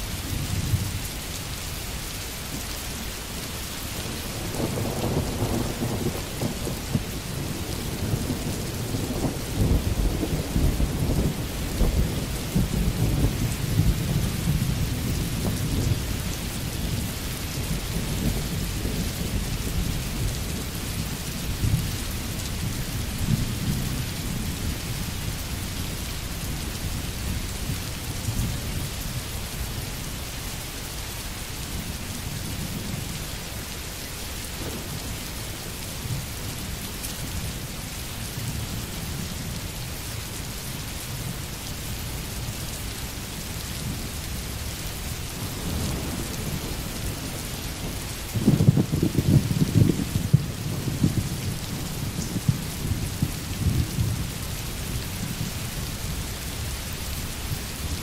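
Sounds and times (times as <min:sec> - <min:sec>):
steady rain: 0:00.0 - 0:58.0
rolling thunder rumble: 0:04.0 - 0:29.3, 0:45.3 - 0:58.0.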